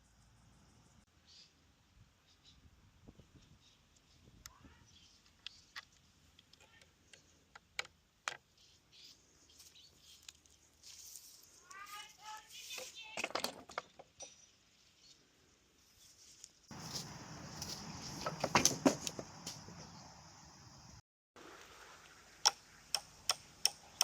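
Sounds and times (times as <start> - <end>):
loud knocks: 16.7 - 19.7.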